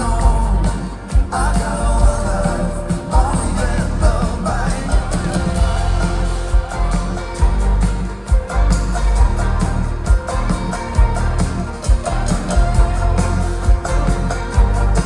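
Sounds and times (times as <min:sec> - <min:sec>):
lead vocal singing: 0:00.0 - 0:08.0
folk-rock band playing live: 0:00.0 - 0:15.0.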